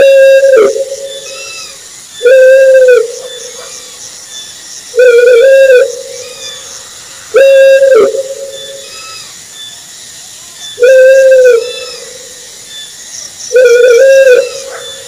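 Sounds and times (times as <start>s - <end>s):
owl hooting: 0.0s - 3.9s, 4.9s - 9.3s, 10.7s - 12.4s, 13.5s - 15.0s.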